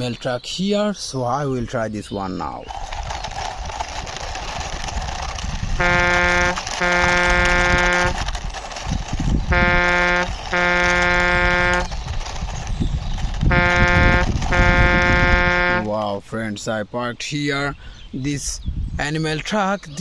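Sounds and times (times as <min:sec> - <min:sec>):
horn honking: 0:05.8 - 0:08.2, 0:09.5 - 0:12.0, 0:13.4 - 0:15.9
steady rushing noise: 0:13.1 - 0:15.9.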